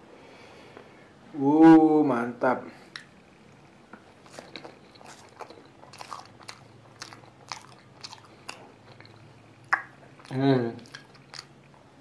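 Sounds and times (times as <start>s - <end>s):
crunching pastry: 4.1s - 11.7s.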